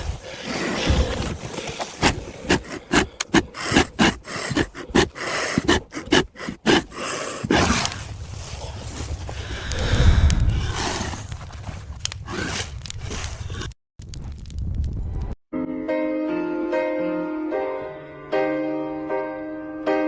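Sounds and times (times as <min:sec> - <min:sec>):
rapid panting breaths: 0:00.0 - 0:13.7
rustling and scraping: 0:00.0 - 0:13.8.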